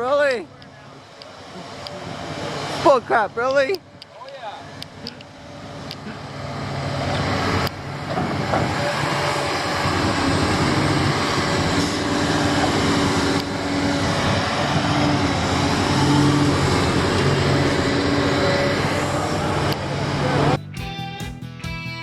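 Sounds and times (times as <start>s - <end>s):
heavy vehicle engine running: 0.0s - 21.6s.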